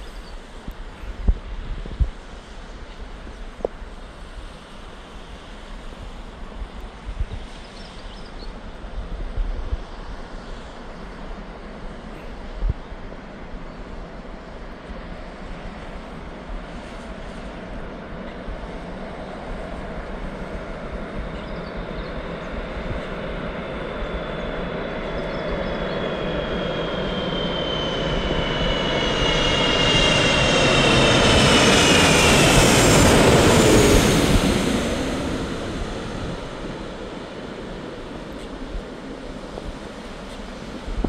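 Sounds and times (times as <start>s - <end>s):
jet airliner passing overhead: 0.0s - 41.0s
engine whine sliding downward: 17.3s - 41.0s.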